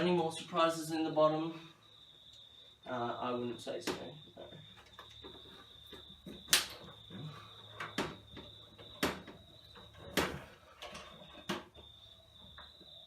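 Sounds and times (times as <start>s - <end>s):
parts knocking as set down: 4.8s - 11.9s.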